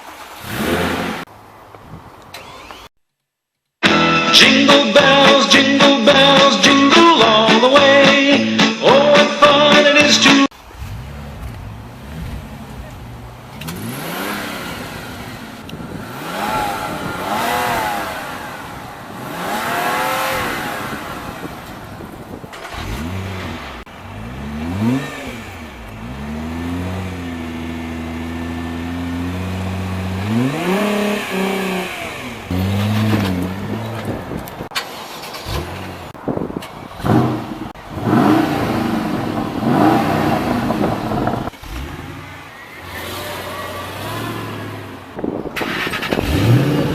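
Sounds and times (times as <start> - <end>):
car engines revving past: 0.0 - 1.3, 10.5 - 46.9
car engine idling: 10.5 - 46.9.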